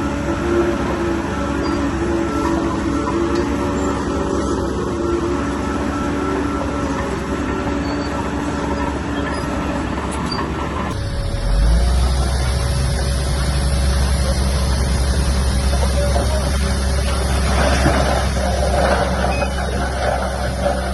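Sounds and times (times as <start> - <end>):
diesel engines of heavy equipment: 0.0 - 20.9
deep engine rumble: 10.9 - 20.9.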